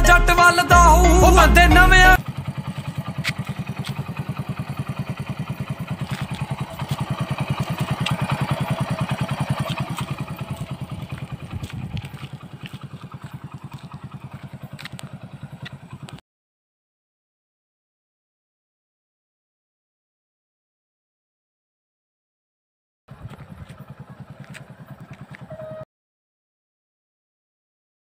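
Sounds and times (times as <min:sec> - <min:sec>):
motorcycle engine idling: 0:00.8 - 0:16.2, 0:23.1 - 0:25.8.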